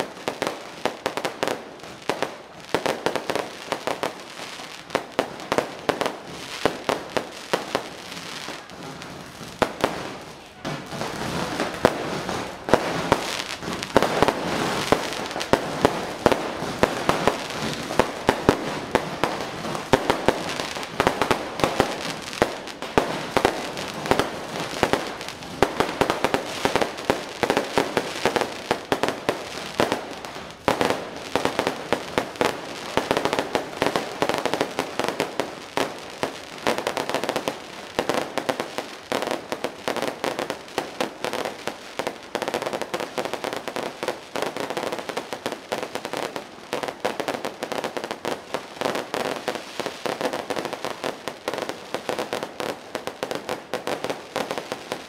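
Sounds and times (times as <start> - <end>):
fireworks crackling and banging: 0.0 - 55.0.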